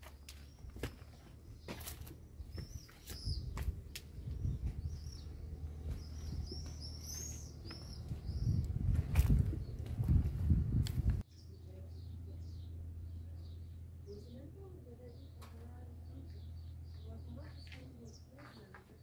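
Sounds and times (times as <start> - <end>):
footsteps on stone: 0.0 - 11.2, 16.9 - 19.0
small birds chirping: 0.0 - 19.0
low rumble: 3.4 - 11.2.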